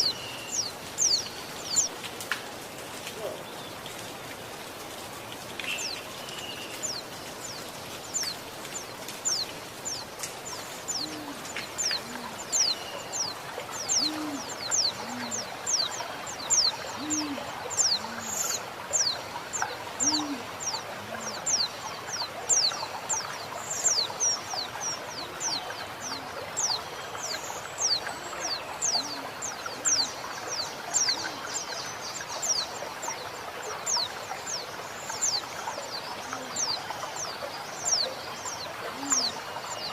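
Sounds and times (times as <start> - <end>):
running water: 0.0 - 39.9
dove cooing: 11.0 - 12.5, 14.0 - 15.5, 16.9 - 18.6, 20.0 - 21.4, 38.9 - 39.4.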